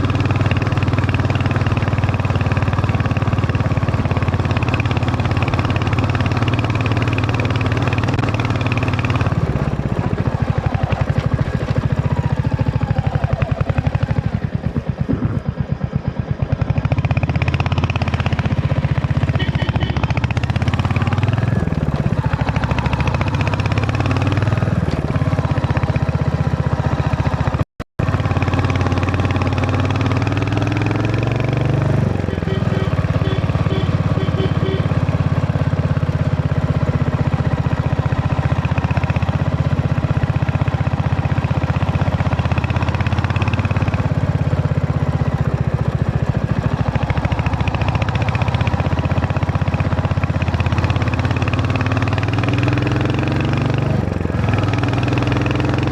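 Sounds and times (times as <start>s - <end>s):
motorcycle engine revving: 0.0s - 55.9s
short beeps: 32.3s - 35.1s.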